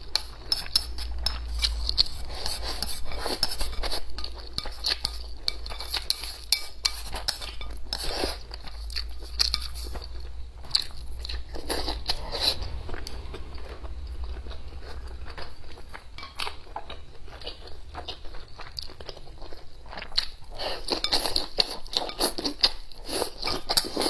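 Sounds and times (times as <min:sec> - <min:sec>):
person chewing and crunching food: 0:00.0 - 0:24.0
steady low hum: 0:07.1 - 0:19.7.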